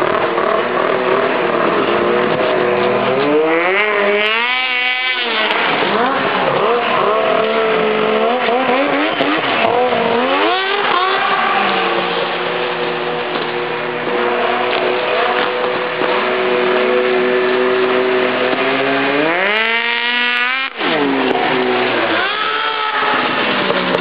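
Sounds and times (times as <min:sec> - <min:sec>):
two-stroke snowmobile engine revving: 0:00.0 - 0:24.0.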